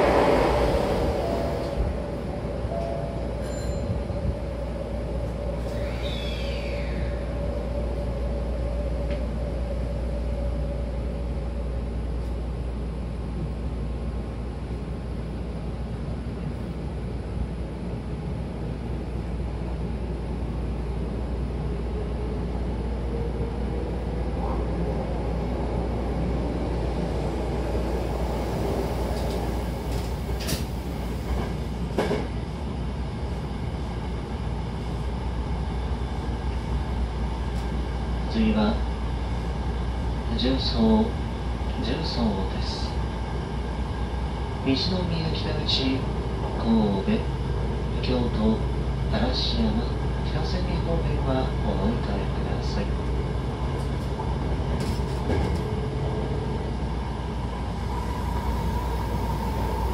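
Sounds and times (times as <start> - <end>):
train wheels rumbling on rail: 0.0 - 59.9
high squeal: 2.9 - 4.7, 5.5 - 8.2.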